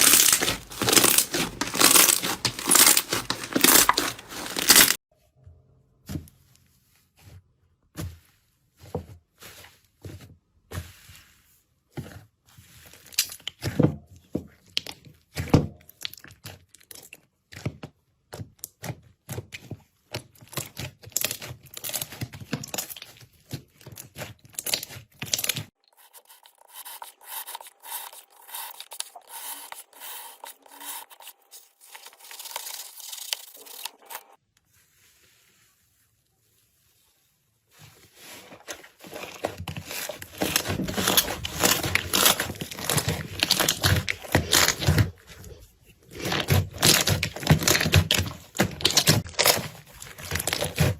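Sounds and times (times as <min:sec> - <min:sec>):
slime squishing and crackling: 0:00.0 - 0:05.0, 0:14.7 - 0:25.7, 0:38.2 - 0:50.9.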